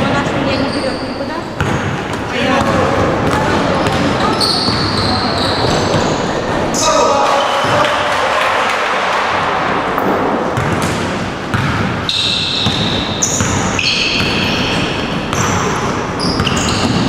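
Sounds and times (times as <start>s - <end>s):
sneakers squeaking on floor: 0.0s - 8.0s, 10.0s - 17.0s
basketball bouncing on court: 1.6s - 6.4s, 9.2s - 17.0s.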